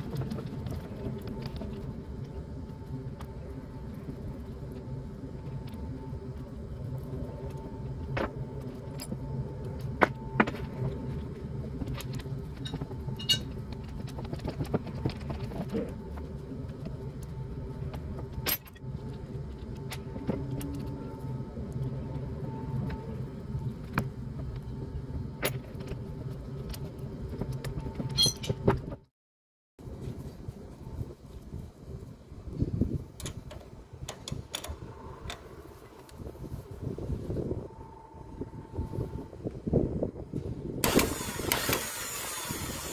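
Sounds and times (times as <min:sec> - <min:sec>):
low mechanical hum: 0:00.0 - 0:29.1, 0:29.8 - 0:42.9
metal tools clinking: 0:28.1 - 0:28.6.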